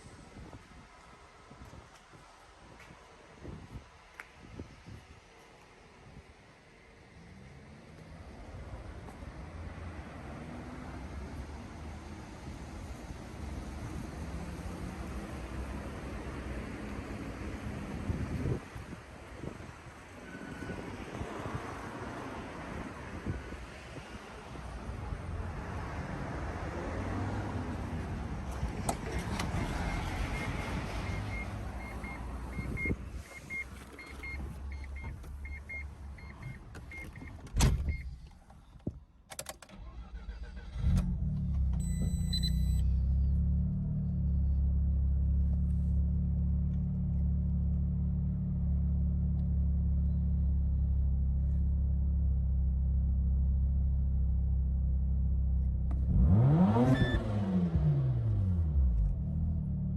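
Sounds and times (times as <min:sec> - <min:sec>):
beeping: 0:29.1 - 0:38.2
rotary engine idling and revving: 0:40.0 - 0:51.6, 0:55.9 - 0:59.9.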